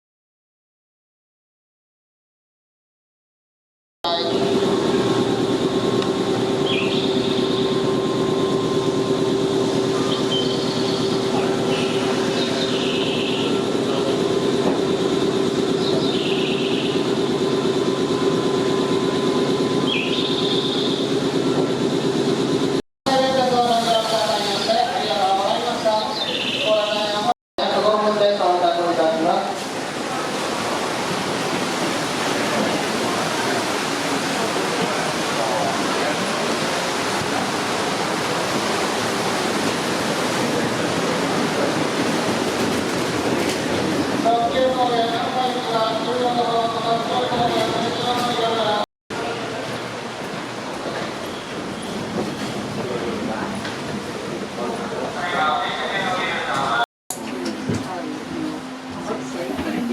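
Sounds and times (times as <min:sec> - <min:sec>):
train rolling noise: 0:04.1 - 0:27.3, 0:29.0 - 0:59.9.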